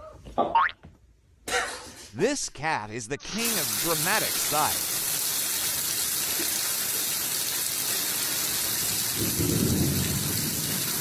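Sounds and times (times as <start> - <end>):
heavy rain on floodwater: 3.4 - 11.0.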